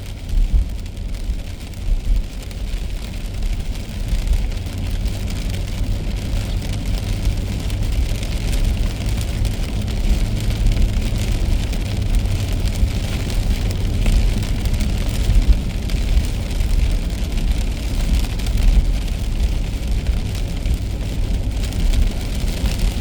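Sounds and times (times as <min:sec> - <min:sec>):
car road rumble: 0:00.0 - 0:23.0
hiss of rain and spray: 0:00.0 - 0:23.0
raindrops ticking: 0:00.0 - 0:23.0.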